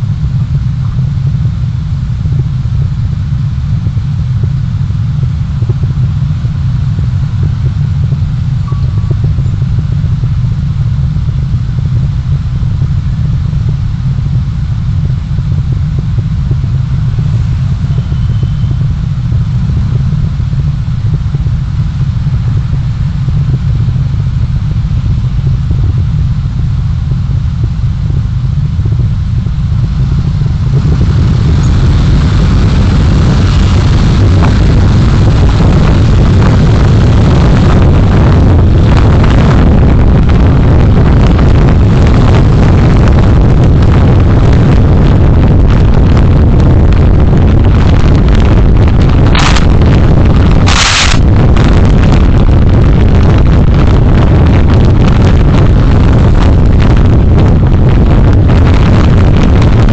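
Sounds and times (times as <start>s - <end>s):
vehicle road rumble: 0.0s - 59.9s
wind hiss: 29.9s - 59.9s.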